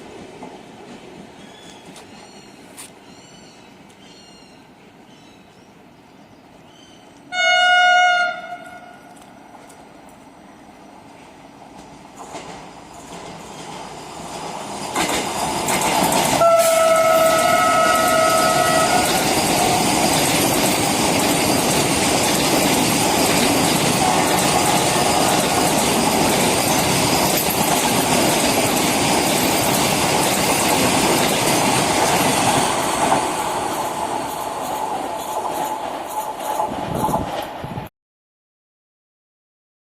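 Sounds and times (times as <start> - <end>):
train passing at speed: 0.0 - 37.9
train horn: 7.3 - 9.2, 16.4 - 20.0, 24.0 - 25.4.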